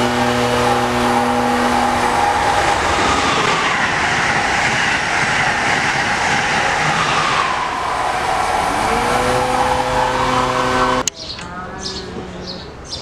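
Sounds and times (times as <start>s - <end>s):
train horn chord: 0.0s - 3.0s, 8.6s - 11.1s
train rushing wind and wheels: 0.0s - 11.1s
falling whine: 0.0s - 12.3s.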